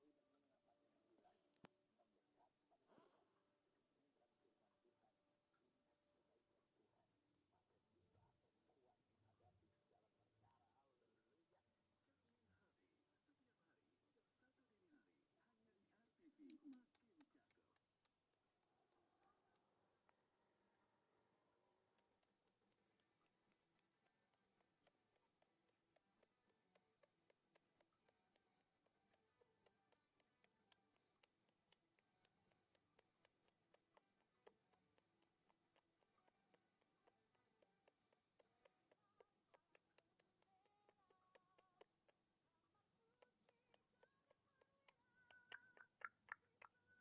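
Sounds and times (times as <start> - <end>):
rapid regular ticking: 16.5 - 19.7, 21.9 - 42.3, 43.1 - 46.7.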